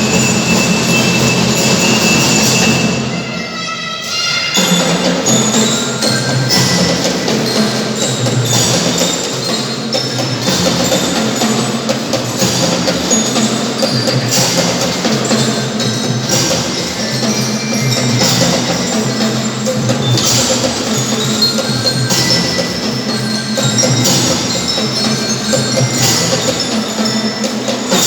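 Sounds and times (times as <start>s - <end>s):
bell-lyra melody: 0.0s - 28.0s
steady drums: 0.0s - 28.0s.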